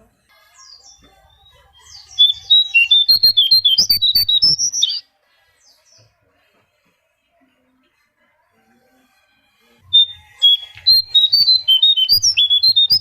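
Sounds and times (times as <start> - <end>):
songbird singing high notes: 0.6 - 5.0, 9.9 - 13.0.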